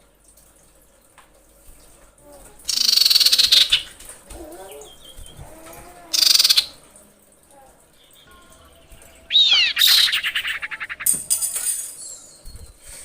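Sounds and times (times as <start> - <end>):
bird rattle call: 9.2 - 11.8
downward-sliding bird whistle: 9.3 - 11.2.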